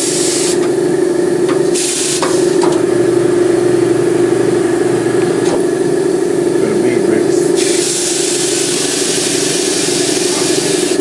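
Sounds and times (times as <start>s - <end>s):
compressed air hiss: 0.0s - 2.6s, 7.4s - 11.0s
machine hum: 0.0s - 11.0s.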